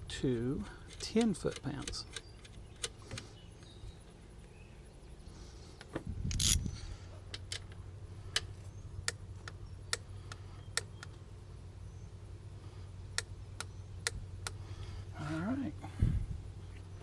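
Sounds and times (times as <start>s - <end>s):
ratchet wrench clicking: 6.3s - 6.7s
metallic rattle of tools: 6.3s - 8.5s.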